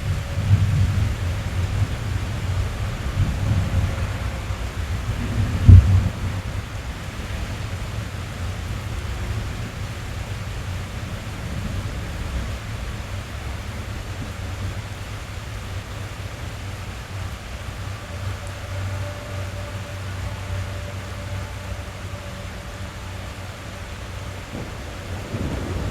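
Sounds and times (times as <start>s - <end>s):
loud thunderclap: 0.0s - 6.6s, 24.5s - 25.9s
rain drumming on car roof: 0.0s - 25.9s.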